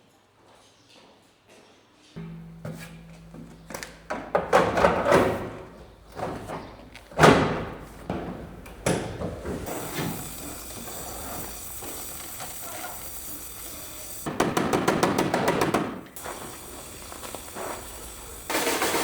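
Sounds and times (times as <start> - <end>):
knocks and thuds: 2.2 - 10.8
steady hiss: 2.2 - 19.0.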